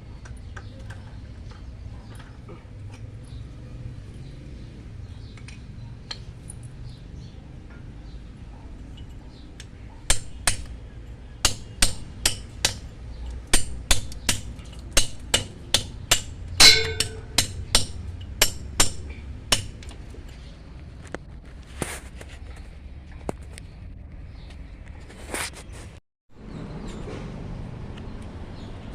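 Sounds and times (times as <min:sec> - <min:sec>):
hammer and chisel on stone: 0:09.0 - 0:20.3.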